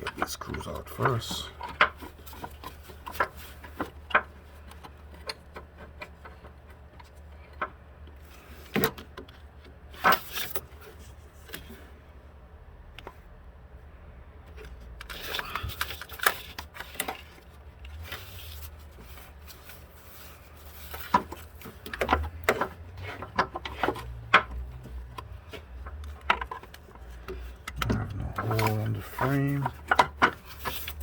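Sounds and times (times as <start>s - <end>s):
low steady hum: 0.0s - 31.0s
hand tools clicking and knocking: 20.9s - 31.0s.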